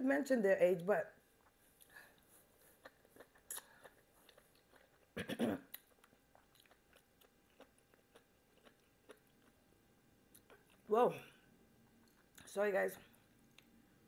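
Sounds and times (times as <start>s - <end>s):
chewing vegetable stalk: 1.3s - 9.7s, 10.3s - 10.9s, 11.8s - 13.8s.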